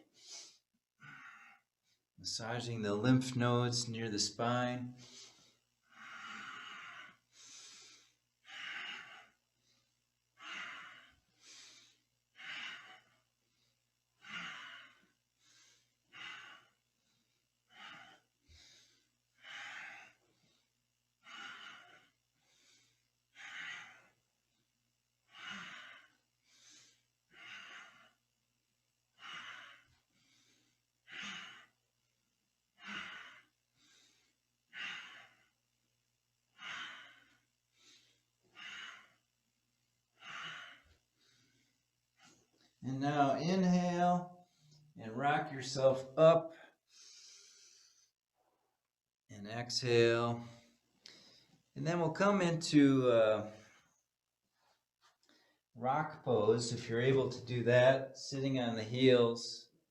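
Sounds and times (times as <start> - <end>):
person breathing: 5.0 - 24.2, 25.3 - 28.2, 32.8 - 35.6, 40.1 - 42.5, 46.4 - 48.2, 50.5 - 51.6.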